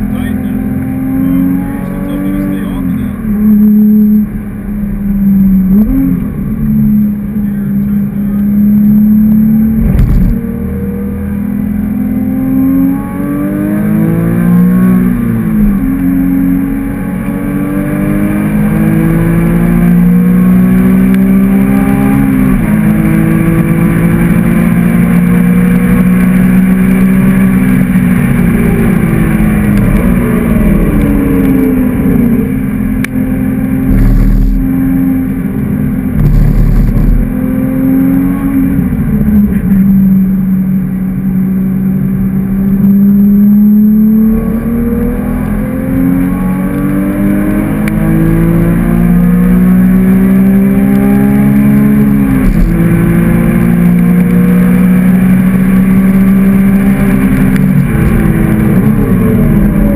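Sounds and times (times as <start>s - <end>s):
sports car engine revving: 0.0s - 59.9s
sharp thump: 9.8s - 10.4s, 36.2s - 37.3s, 52.4s - 52.8s.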